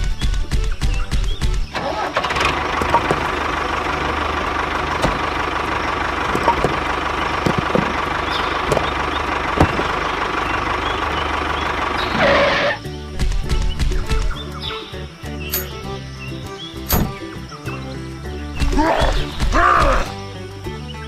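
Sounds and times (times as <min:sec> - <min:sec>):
tractor motor droning with whine: 0:01.7 - 0:18.4.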